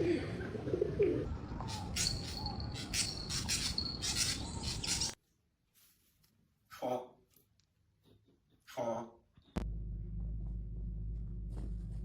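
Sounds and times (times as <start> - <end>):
rapid high-pitched chirping: 1.7 - 5.2
low background rumble: 9.6 - 12.0.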